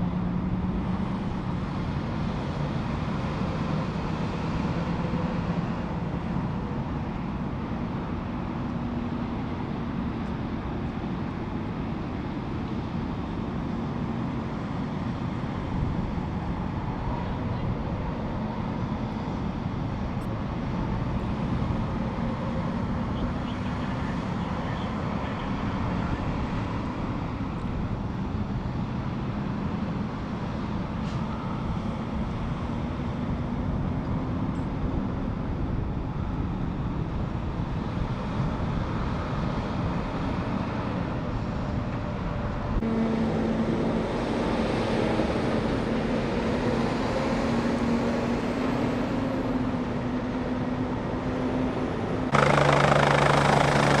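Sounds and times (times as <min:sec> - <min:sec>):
road traffic noise: 0:00.0 - 0:54.0
loud engine tone: 0:41.0 - 0:54.0.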